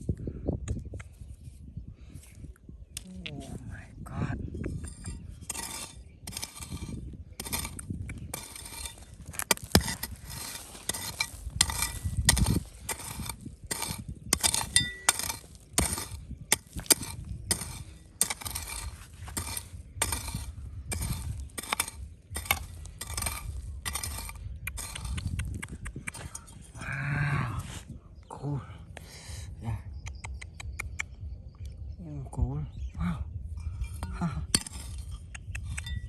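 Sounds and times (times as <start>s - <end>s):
stones scraping and clinking: 4.6s - 27.8s, 33.7s - 36.0s
stone striking stone: 4.8s - 25.4s, 34.0s - 36.0s.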